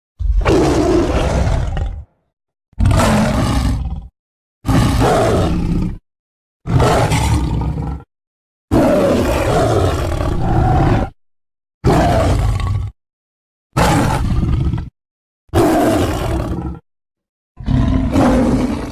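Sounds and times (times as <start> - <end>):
big cat roars: 0.2 - 2.2, 2.8 - 6.0, 6.7 - 8.1, 8.7 - 11.2, 11.8 - 13.0, 13.8 - 14.9, 15.5 - 16.8, 17.6 - 18.9.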